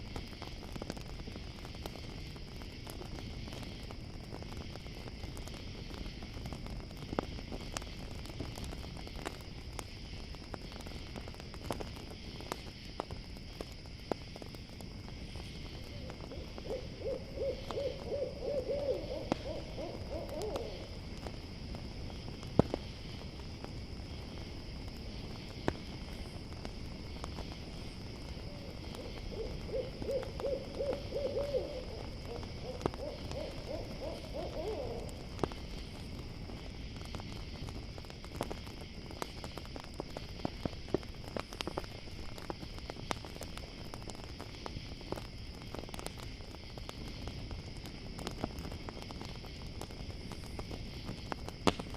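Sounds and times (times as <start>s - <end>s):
campfire crackling and popping: 0.0s - 51.9s
crickets chirring: 0.0s - 51.9s
owl hooting: 15.8s - 20.9s, 28.5s - 35.2s.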